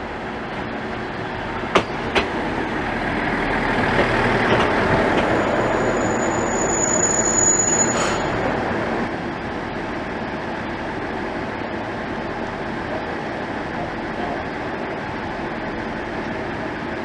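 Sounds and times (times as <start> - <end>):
wheels clacking: 0.0 - 9.2
train running on rails: 0.0 - 17.0
high-pitched wheel squeal: 4.4 - 9.1.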